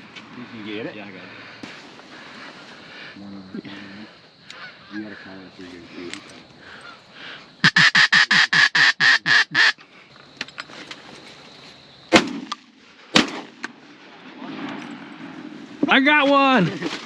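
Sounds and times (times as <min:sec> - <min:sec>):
duck call quacks: 0:07.6 - 0:09.8
shotgun shots: 0:12.1 - 0:13.7.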